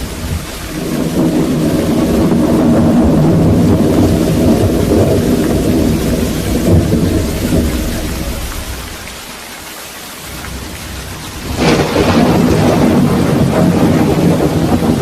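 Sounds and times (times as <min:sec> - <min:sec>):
thunderclap cracking: 0:00.0 - 0:09.2, 0:10.2 - 0:15.0
thunder rumbling: 0:00.0 - 0:09.5, 0:10.2 - 0:15.0
steady rain: 0:00.0 - 0:15.0.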